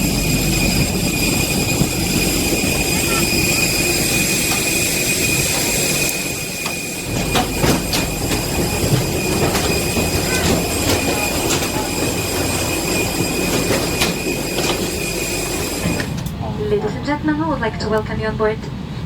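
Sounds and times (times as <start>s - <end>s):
constant high-pitched whine: 0.0s - 18.6s.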